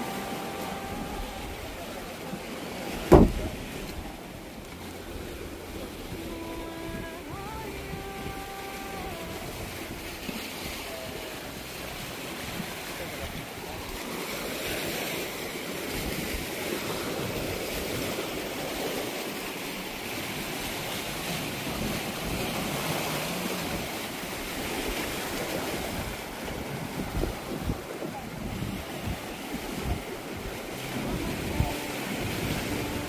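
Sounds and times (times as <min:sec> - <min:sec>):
sea waves washing in: 0:00.0 - 0:33.0
wind buffeting microphone: 0:00.0 - 0:33.0.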